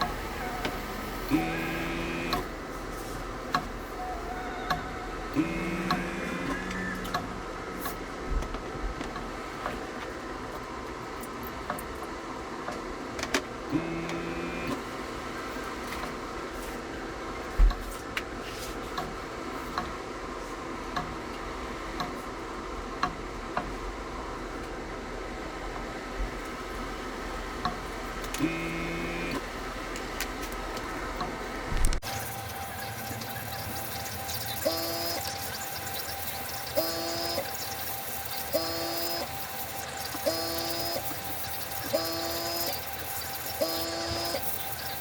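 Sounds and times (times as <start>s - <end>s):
airbrush compressor running: 0.0s - 3.1s, 5.1s - 7.9s, 32.0s - 45.0s.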